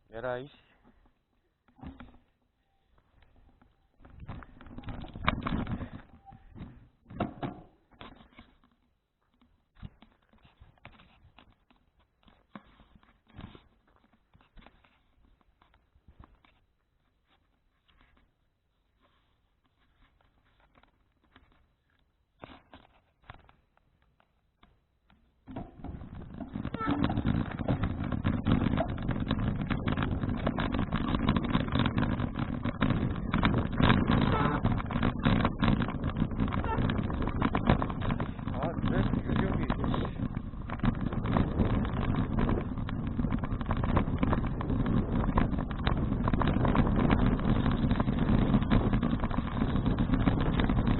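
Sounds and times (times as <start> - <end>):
bicycle knocks and rattles: 1.0 - 2.4, 3.2 - 16.7, 19.7 - 50.9
gusty thumps: 25.5 - 50.9
wind buffeting microphone: 26.0 - 50.9.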